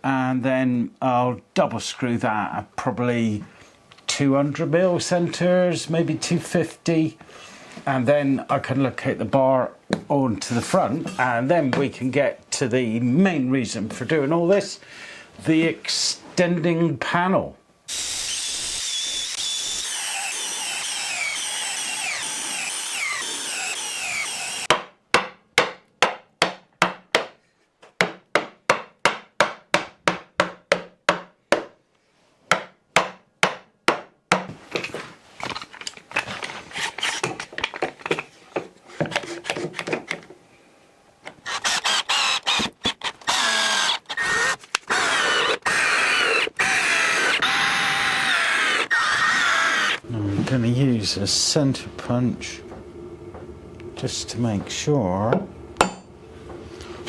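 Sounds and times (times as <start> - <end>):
power tool whining: 17.9 - 24.7, 41.4 - 50.0.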